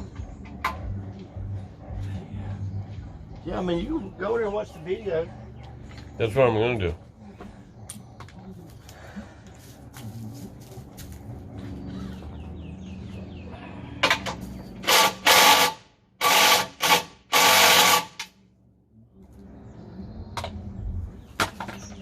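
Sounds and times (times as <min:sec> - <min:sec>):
handheld power tool bursts: 0:14.8 - 0:18.3.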